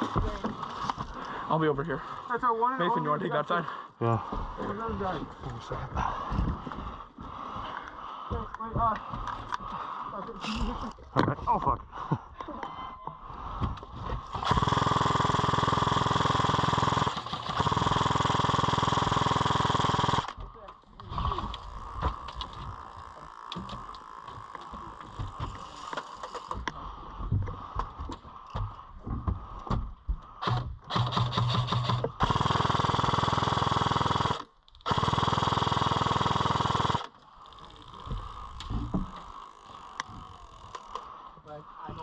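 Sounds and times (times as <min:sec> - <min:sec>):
airsoft gun firing bursts: 0:14.3 - 0:20.4, 0:30.4 - 0:37.1.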